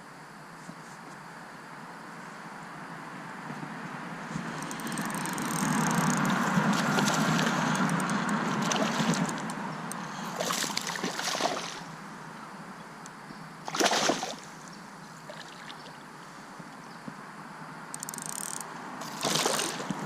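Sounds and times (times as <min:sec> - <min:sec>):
water sloshing against kayak: 0:04.4 - 0:09.5, 0:10.1 - 0:11.9, 0:13.7 - 0:14.7, 0:19.0 - 0:20.0
short splashes: 0:06.6 - 0:07.8, 0:08.5 - 0:09.4, 0:10.3 - 0:11.9, 0:13.6 - 0:14.6, 0:19.0 - 0:20.0.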